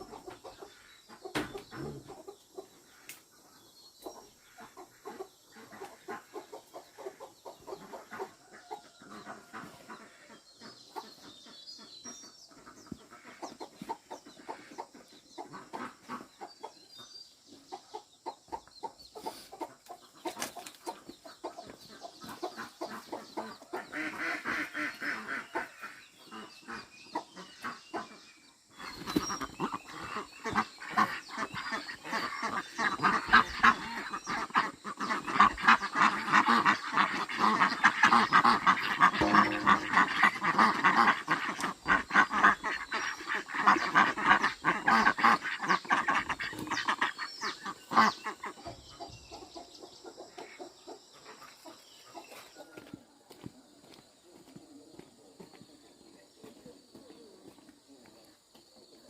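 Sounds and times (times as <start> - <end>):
fowl honking calls: 29.6 - 48.5.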